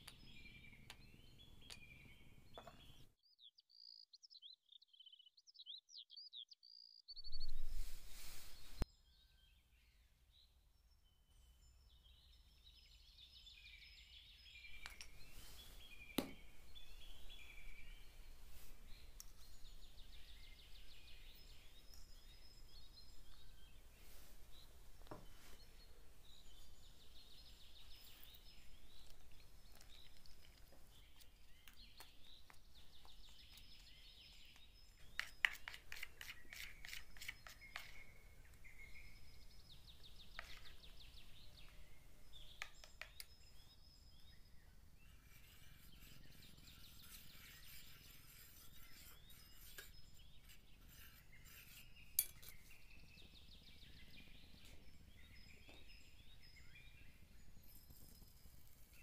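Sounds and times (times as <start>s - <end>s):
metal spoon clinking in steel bowl: 52.2s - 52.6s.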